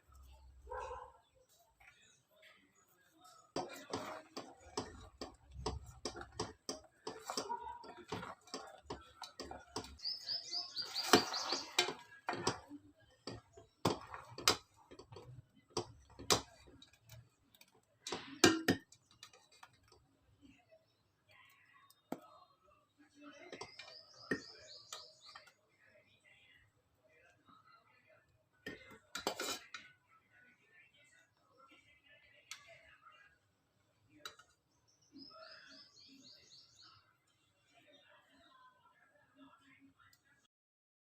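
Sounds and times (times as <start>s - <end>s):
utensils knocking on cookware: 3.6s - 16.8s, 18.1s - 19.4s.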